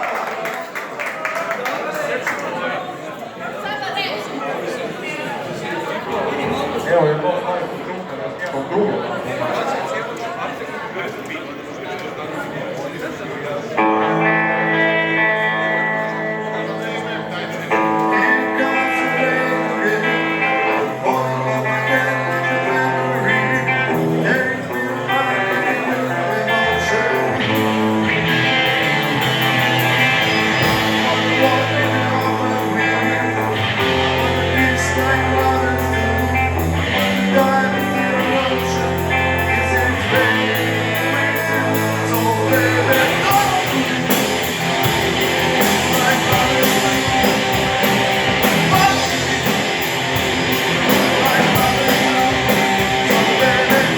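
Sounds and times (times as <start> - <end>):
electric guitar: 13.8 - 53.9
bass notes: 17.8 - 53.9
person singing: 17.8 - 53.9.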